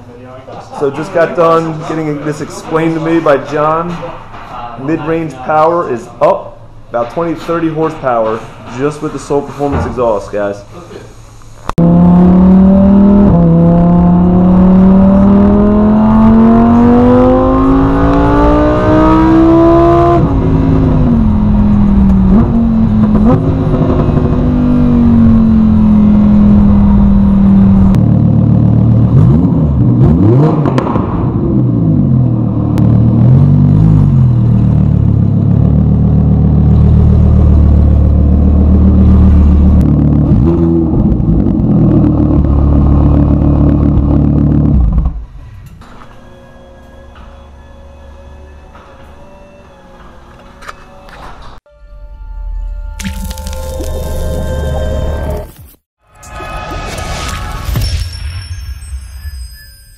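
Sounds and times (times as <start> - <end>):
sports car engine revving: 11.8 - 45.2.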